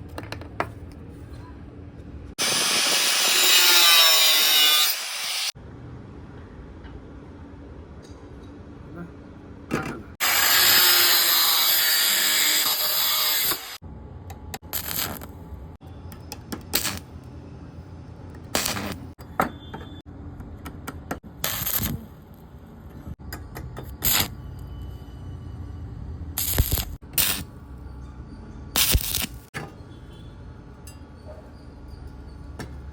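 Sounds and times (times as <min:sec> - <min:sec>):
electric welding: 0:02.4 - 0:05.6, 0:10.2 - 0:13.8, 0:14.7 - 0:15.4, 0:16.7 - 0:17.1, 0:18.5 - 0:19.1, 0:21.4 - 0:22.2, 0:24.0 - 0:24.4, 0:26.4 - 0:27.5, 0:28.8 - 0:29.5.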